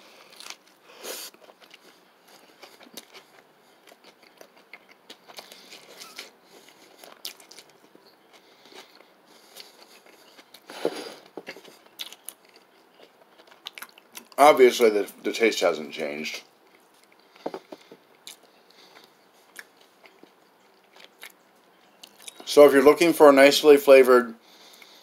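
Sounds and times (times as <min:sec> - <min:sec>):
person biting and chewing crunchy burger: 0:00.2 - 0:14.4.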